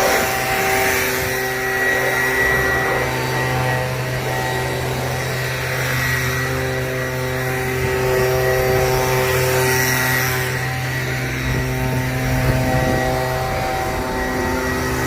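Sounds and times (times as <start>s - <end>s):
pressure washer motor hum: 0.0s - 15.0s.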